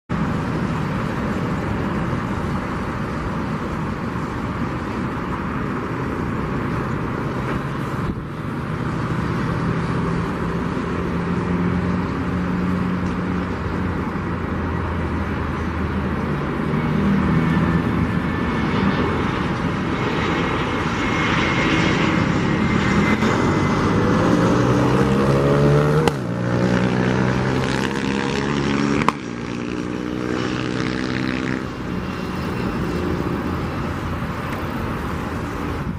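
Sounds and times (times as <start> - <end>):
jet engines rushing: 0.1 - 35.9
whining tones gliding in pitch: 7.2 - 25.8, 26.4 - 35.9.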